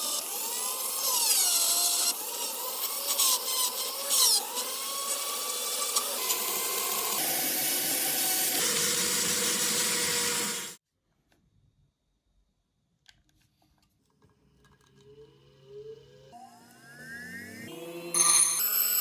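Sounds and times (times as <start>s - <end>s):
power tool running: 0.0s - 10.8s, 15.6s - 19.0s
motor whine rising in pitch: 15.1s - 19.0s.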